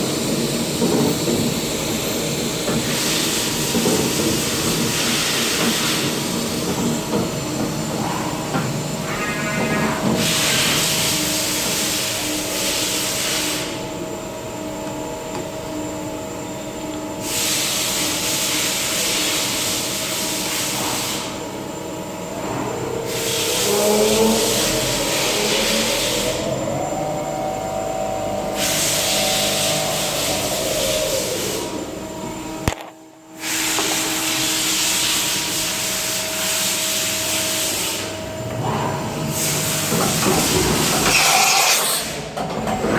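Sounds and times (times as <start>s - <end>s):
milling machine hum: 0.0s - 42.9s
machine hissing: 0.2s - 13.8s, 17.2s - 32.6s, 33.4s - 42.4s
spindle tone: 22.3s - 31.4s.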